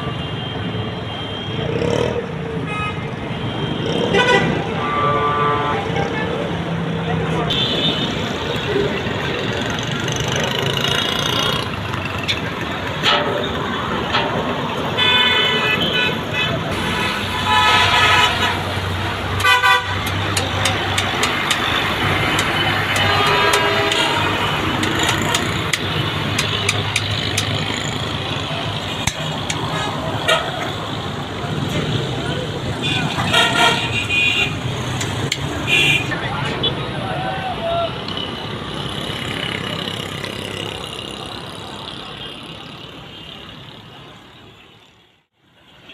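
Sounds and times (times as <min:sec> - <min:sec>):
road traffic noise: 0:00.0 - 0:45.9
sharp clicks and knocks: 0:12.2 - 0:14.7, 0:19.3 - 0:27.8, 0:28.9 - 0:29.8, 0:34.9 - 0:35.6.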